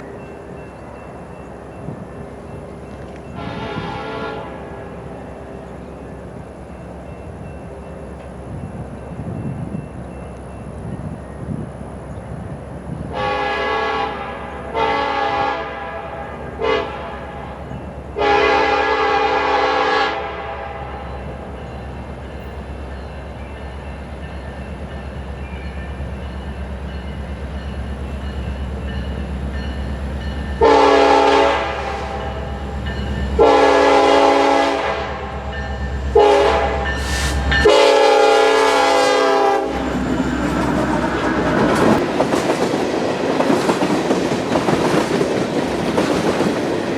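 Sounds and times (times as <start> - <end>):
train rumbling: 0.0 - 46.9
locomotive air horn: 3.4 - 4.9, 13.1 - 17.6, 18.2 - 21.0, 30.6 - 32.5, 33.4 - 35.4, 36.1 - 39.8.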